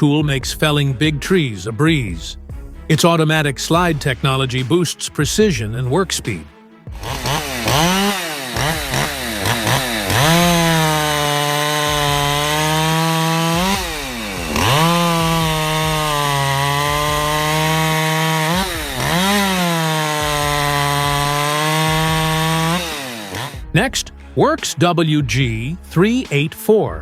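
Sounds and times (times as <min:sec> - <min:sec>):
chainsaw cutting wood: 0:06.9 - 0:23.7.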